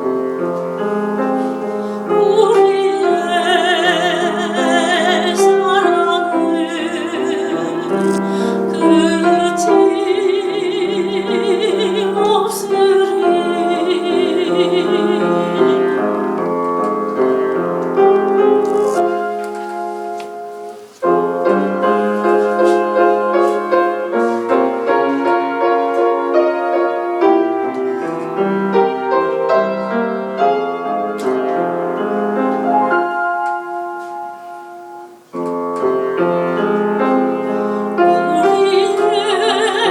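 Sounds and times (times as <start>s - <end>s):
piano accompaniment: 0.0s - 39.9s
soprano singing with vibrato: 1.9s - 16.5s, 37.4s - 39.9s.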